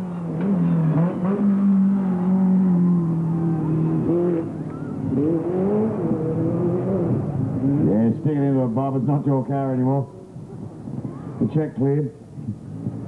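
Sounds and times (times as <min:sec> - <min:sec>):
race car engine revving: 0:00.0 - 0:09.5.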